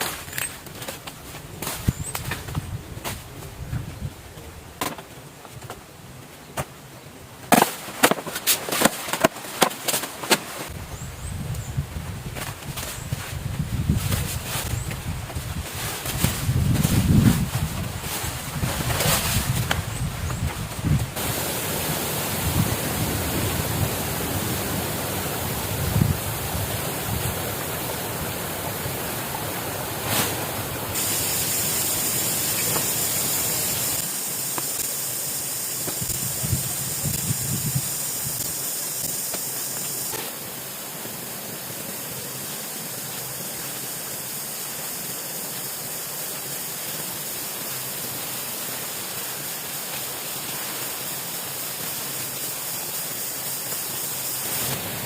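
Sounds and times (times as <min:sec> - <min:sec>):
water hissing: 0:13.7 - 0:55.0.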